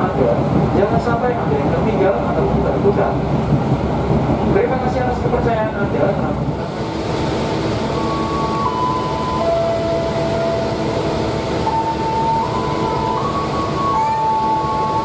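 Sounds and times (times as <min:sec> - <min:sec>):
train carriage rumble and hum: 0:00.0 - 0:15.0
slow tune of held notes: 0:08.0 - 0:15.0.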